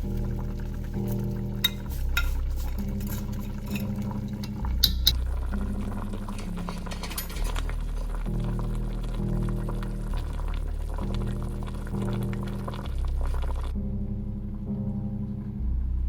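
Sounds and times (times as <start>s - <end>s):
soft background music: 0.0s - 16.0s
utensils clinking against cookware: 1.0s - 8.3s.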